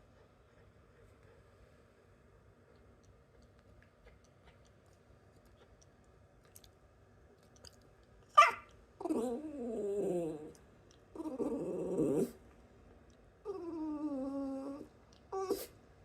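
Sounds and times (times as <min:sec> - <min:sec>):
dog whining grumble: 0:09.0 - 0:12.4, 0:13.4 - 0:15.7.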